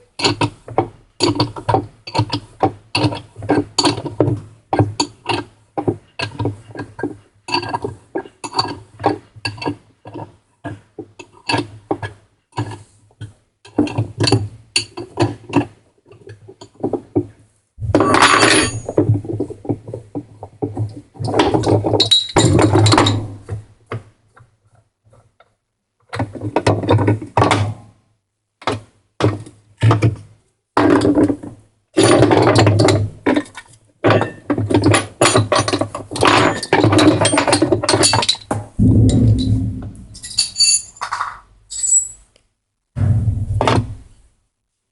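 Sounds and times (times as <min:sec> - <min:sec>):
scraping or rattling: 0:17.8 - 0:19.5, 0:38.8 - 0:41.4
metal and plastic parts clinking: 0:21.3 - 0:23.4, 0:32.0 - 0:38.6.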